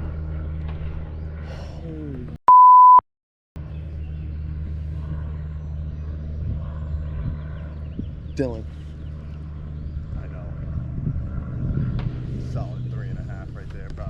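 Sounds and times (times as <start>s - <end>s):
steady low hum: 0.0s - 2.4s, 3.6s - 14.0s
censor bleep: 2.5s - 3.0s.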